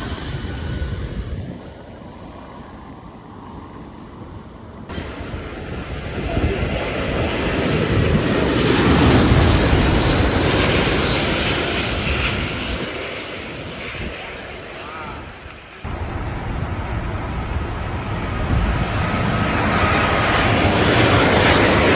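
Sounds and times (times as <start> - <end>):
jet airliner engines passing: 0.0 - 21.9.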